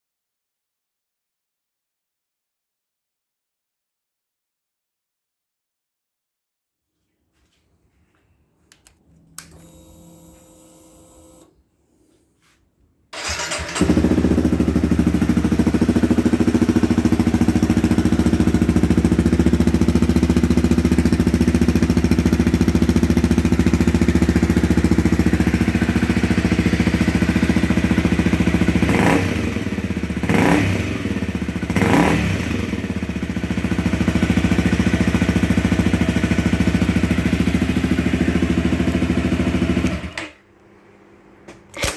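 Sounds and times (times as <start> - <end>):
starter motor whirr: 9.3 - 11.5, 13.2 - 14.7
engine idling: 13.2 - 30.4, 32.6 - 40.0.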